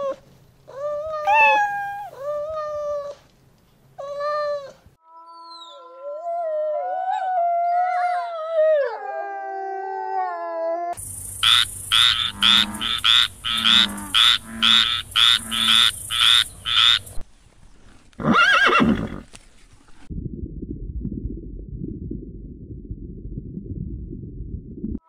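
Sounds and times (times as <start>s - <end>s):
kitten meowing: 1.2s - 2.1s
frog croaking: 11.0s - 17.2s.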